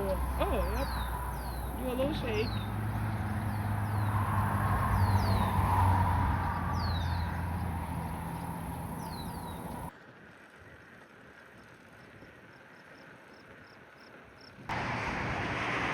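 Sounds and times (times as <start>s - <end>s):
bird chirps: 0.0s - 5.8s, 6.5s - 9.9s
wind: 0.0s - 15.9s.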